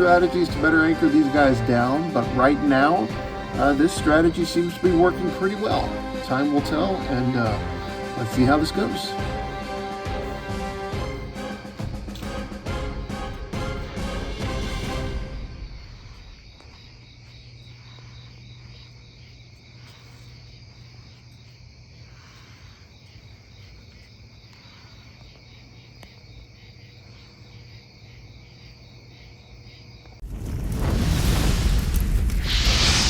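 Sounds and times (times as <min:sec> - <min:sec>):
crickets chirping: 0:00.0 - 0:33.0
loud boom: 0:30.2 - 0:33.0.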